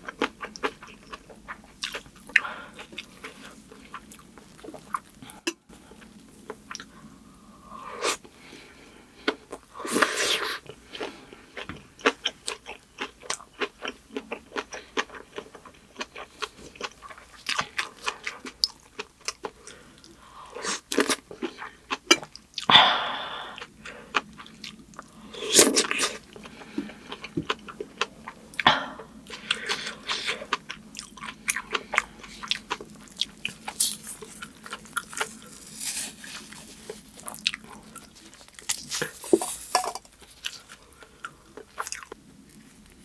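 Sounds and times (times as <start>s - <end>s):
crunchy bites: 32.3s - 40.8s.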